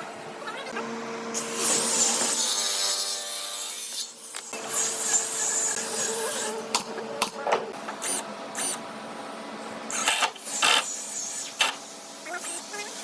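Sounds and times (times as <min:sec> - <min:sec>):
steady motor hum: 0:00.0 - 0:13.0
power tool cutting wood: 0:01.4 - 0:06.6.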